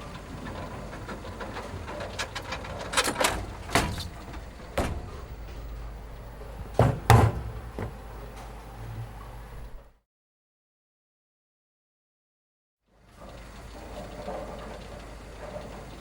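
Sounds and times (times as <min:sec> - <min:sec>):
steady low hum: 0:00.0 - 0:10.0
sharp knocks or bangs: 0:06.7 - 0:08.0.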